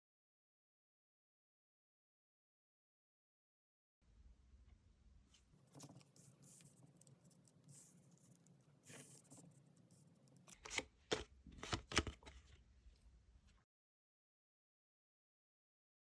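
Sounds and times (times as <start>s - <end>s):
cards rustling and sliding: 5.7s - 9.5s, 10.3s - 12.6s.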